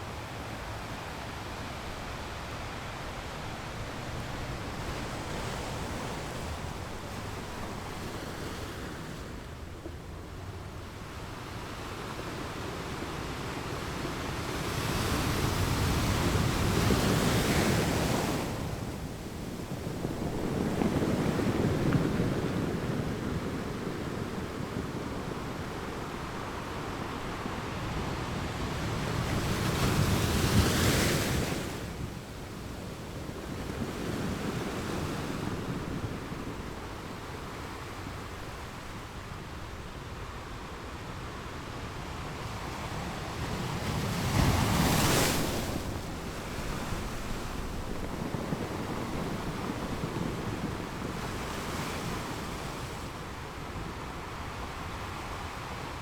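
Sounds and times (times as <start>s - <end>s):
ocean waves crashing on beach: 42.2s - 56.0s.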